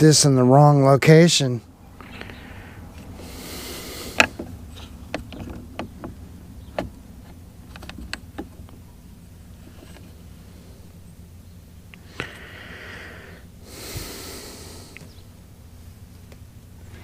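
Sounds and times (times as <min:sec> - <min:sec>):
small sharp clicks and knocks: 0:04.1 - 0:08.8.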